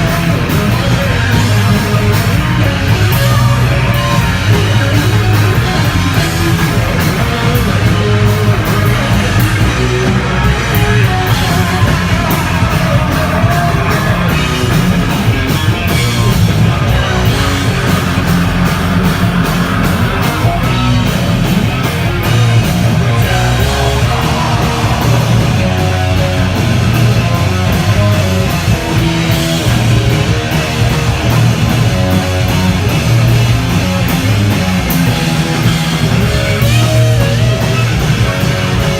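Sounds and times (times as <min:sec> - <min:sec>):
hardcore band playing live: 0:00.0 - 0:38.9.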